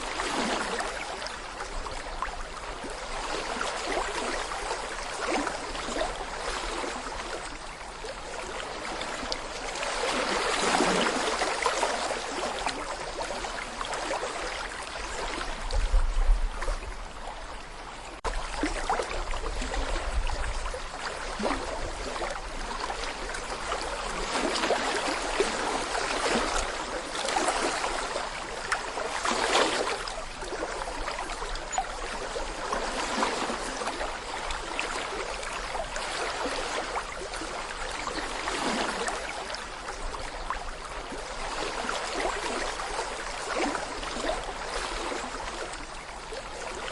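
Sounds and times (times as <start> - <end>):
brook babbling over stones: 0.0 - 46.9.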